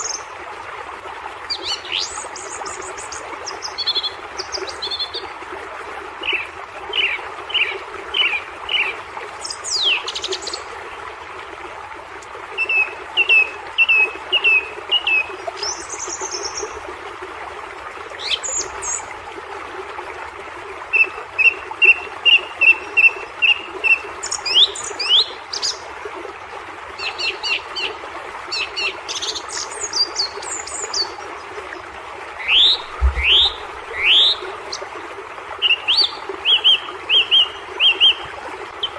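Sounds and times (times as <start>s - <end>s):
falling water rushing: 31.8s - 36.1s
songbirds singing: 32.4s - 34.8s.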